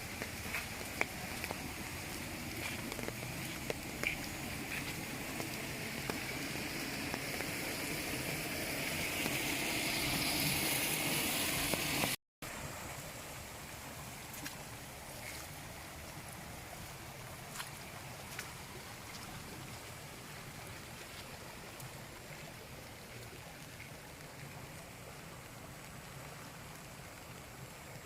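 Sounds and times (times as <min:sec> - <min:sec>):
raindrop ticks: 0:00.0 - 0:07.6
water running: 0:00.0 - 0:12.2
steady rain: 0:00.0 - 0:28.0.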